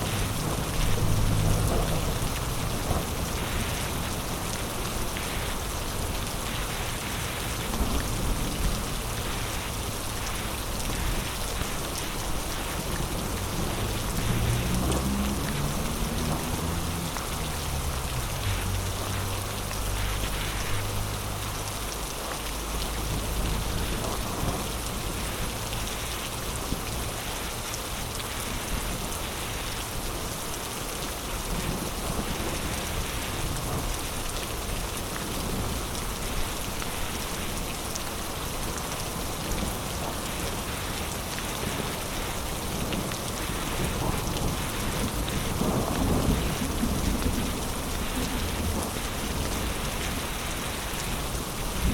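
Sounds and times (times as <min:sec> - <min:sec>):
thunder rumbling: 0:00.0 - 0:19.2, 0:42.7 - 0:50.4, 0:51.2 - 0:51.9
heavy rain pouring: 0:00.0 - 0:51.9.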